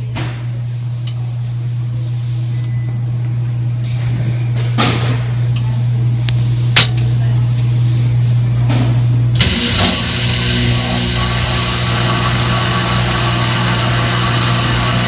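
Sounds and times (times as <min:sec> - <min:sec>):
washing machine humming: 0:09.2 - 0:15.0.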